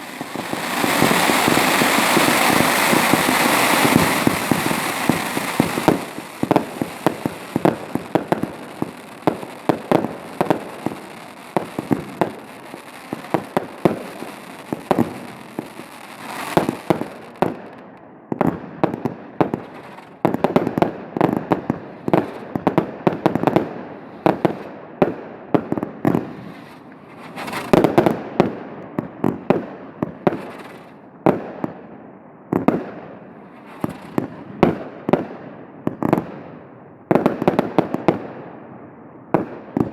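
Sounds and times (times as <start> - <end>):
fireworks hissing: 0.0 - 17.4
fireworks bangs with echo: 0.0 - 39.9.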